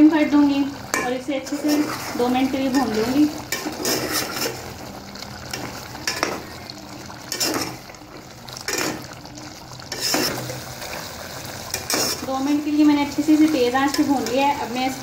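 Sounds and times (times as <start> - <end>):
food sizzling in a metal pot: 0.0 - 15.0
metal spoon scraping a pot: 0.9 - 4.7, 7.3 - 7.8, 8.7 - 9.2, 9.9 - 10.6, 11.7 - 12.5.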